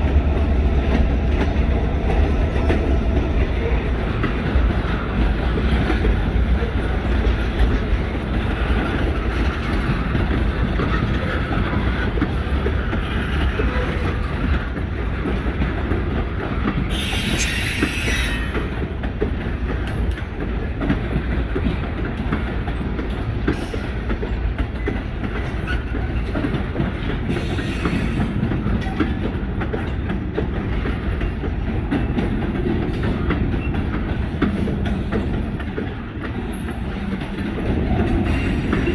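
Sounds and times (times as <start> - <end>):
freight train rumbling: 0.0 - 38.9
train wheels clicking: 0.0 - 38.9
air brake hiss: 16.9 - 18.5
wheel squeal: 16.9 - 18.6.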